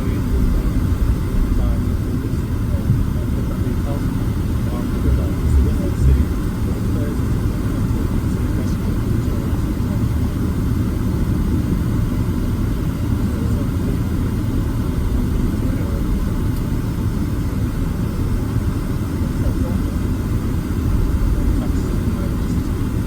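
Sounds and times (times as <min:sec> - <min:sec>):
airliner cabin rumble: 0:00.0 - 0:23.0.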